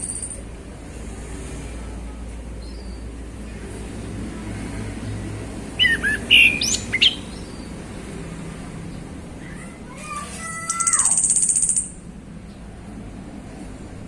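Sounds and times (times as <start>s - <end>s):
thrush singing whistled notes: 5.8s - 7.7s.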